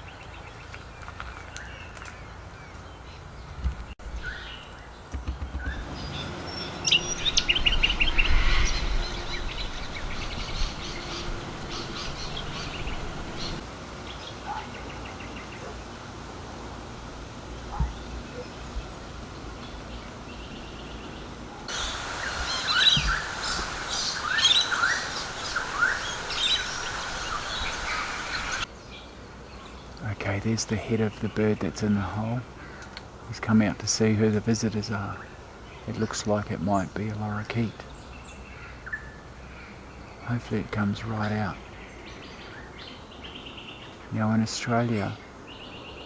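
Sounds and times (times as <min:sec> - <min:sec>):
birds chirping and trilling: 0:00.0 - 0:16.0, 0:17.5 - 0:46.0
low rumble: 0:05.8 - 0:13.6.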